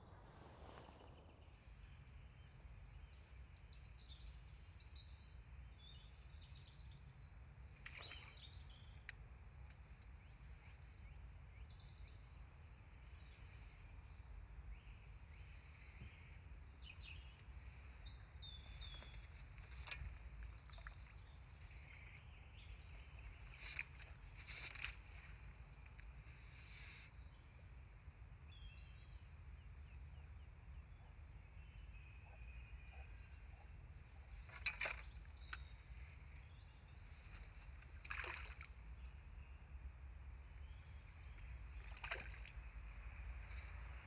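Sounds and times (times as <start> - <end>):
faint low outdoor rumble: 0.0 - 44.0
songbirds singing: 0.0 - 44.0.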